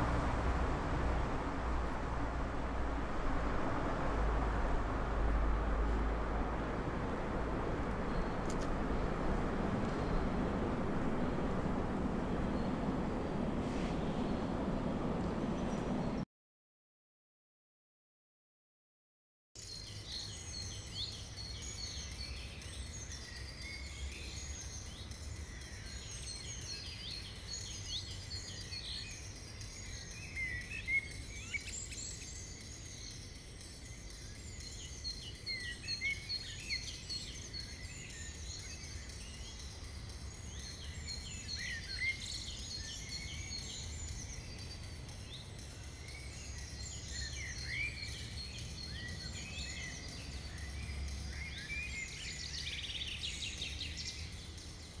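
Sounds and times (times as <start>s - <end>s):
low steady rumble: 0.0s - 16.2s
small birds chirping: 7.8s - 16.2s, 19.6s - 55.0s.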